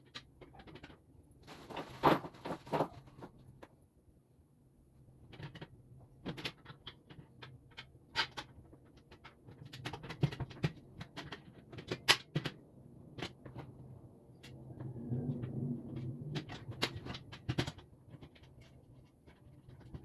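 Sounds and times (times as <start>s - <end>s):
parts knocking and clicking: 5.3s - 20.0s.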